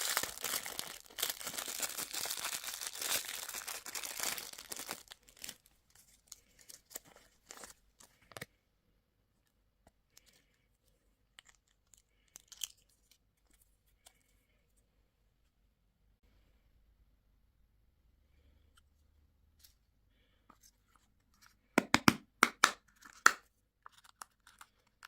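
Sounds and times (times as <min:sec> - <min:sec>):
candy wrapper crinkling: 0:00.0 - 0:08.4, 0:11.4 - 0:13.1, 0:23.0 - 0:25.0.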